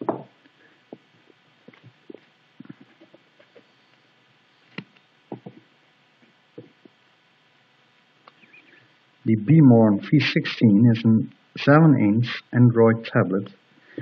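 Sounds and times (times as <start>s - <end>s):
faint knocks and taps: 0.0s - 0.3s, 4.7s - 7.0s.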